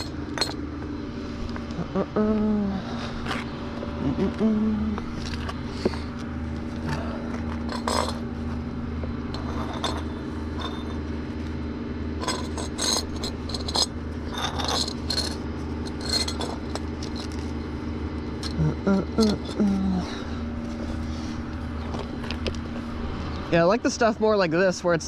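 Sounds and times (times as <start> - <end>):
metallic clinks and scrapes: 0.0 - 0.6, 7.5 - 8.3, 9.3 - 11.1, 12.2 - 17.6
vehicle engine idling: 0.0 - 25.0.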